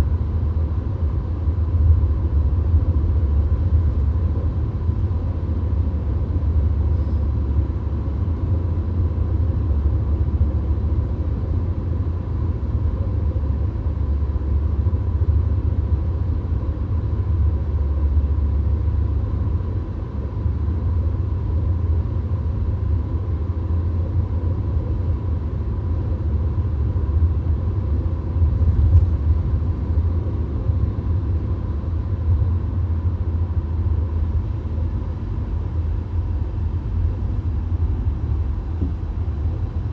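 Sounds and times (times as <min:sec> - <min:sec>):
car road rumble: 0:28.3 - 0:30.1, 0:37.9 - 0:39.9.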